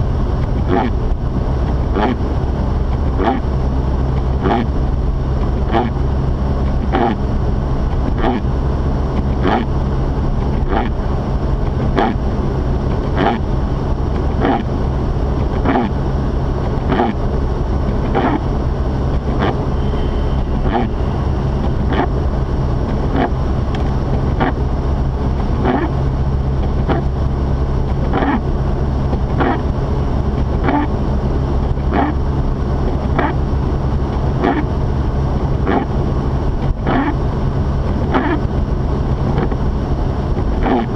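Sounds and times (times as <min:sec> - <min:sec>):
car engine and tyre drone: 0:00.0 - 0:40.9
windshield wipers sweeping: 0:15.3 - 0:16.0, 0:16.6 - 0:28.4, 0:29.1 - 0:30.9, 0:35.4 - 0:40.9.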